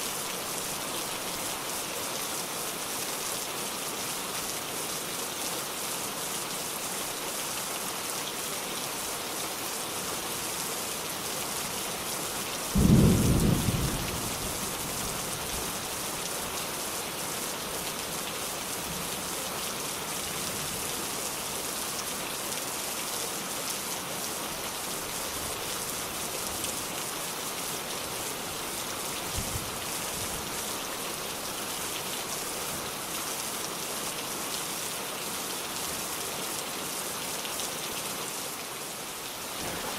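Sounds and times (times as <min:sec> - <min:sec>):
steady rain hissing: 0:00.0 - 0:39.9
thunder clap and rumble: 0:12.8 - 0:14.6.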